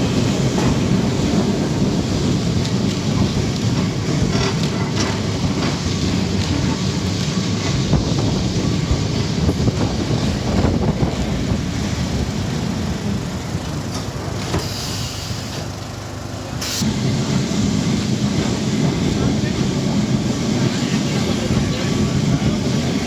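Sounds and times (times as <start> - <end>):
streetcar rumbling on rails: 0.0 - 23.0
short hiss: 14.6 - 15.7.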